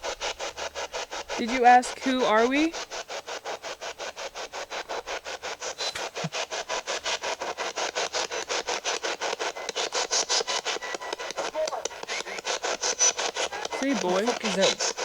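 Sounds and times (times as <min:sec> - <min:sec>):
radio static chopping: 0:05.7 - 0:06.6, 0:10.6 - 0:15.0.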